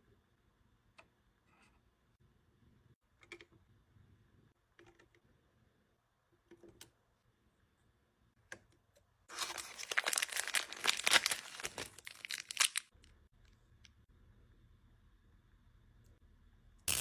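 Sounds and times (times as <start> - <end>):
plastic packaging crinkling and tearing: 9.3 - 12.9.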